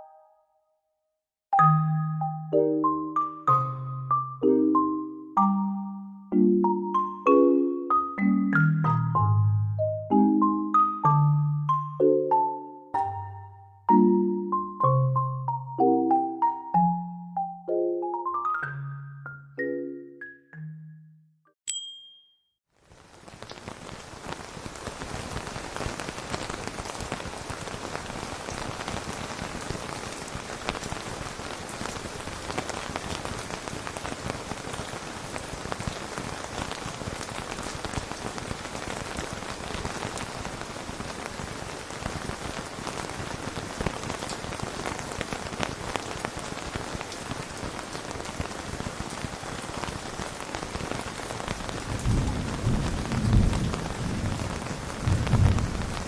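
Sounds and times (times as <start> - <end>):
steady rain on a surface: 22.7 - 56.0
low rumble of thunder: 51.9 - 56.0.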